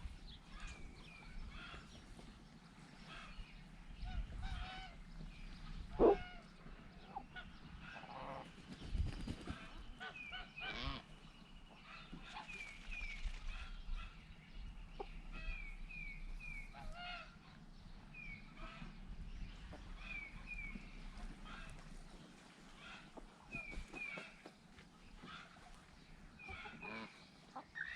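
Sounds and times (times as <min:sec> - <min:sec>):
poultry honking and squawking: 0:04.0 - 0:05.0, 0:05.9 - 0:06.5, 0:10.0 - 0:11.2, 0:16.5 - 0:17.4, 0:26.3 - 0:27.9.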